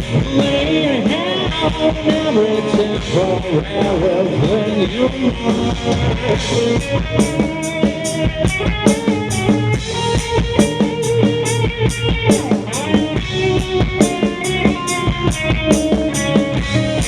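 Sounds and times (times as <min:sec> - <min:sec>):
drum kit beat: 0:00.0 - 0:17.0
live rock band playing: 0:00.0 - 0:17.0.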